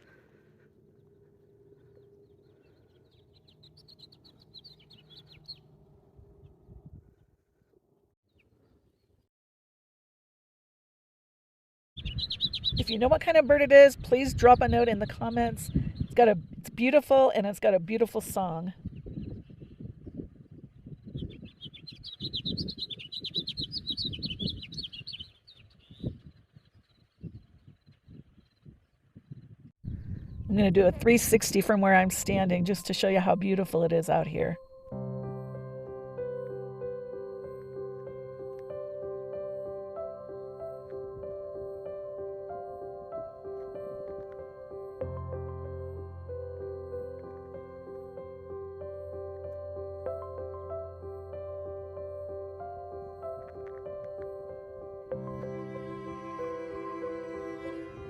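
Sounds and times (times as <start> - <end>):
songbird singing: 0.9 - 6.6, 12.0 - 35.4.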